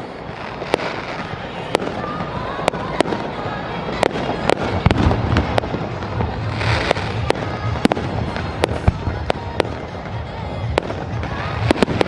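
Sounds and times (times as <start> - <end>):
fireworks bangs: 0.0 - 12.0
fireworks hissing crackle: 0.0 - 12.0.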